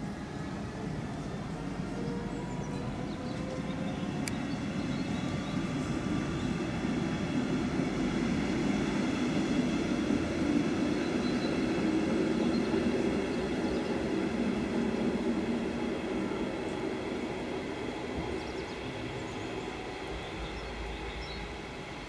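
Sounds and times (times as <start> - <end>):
train rumbling: 0.0 - 22.0.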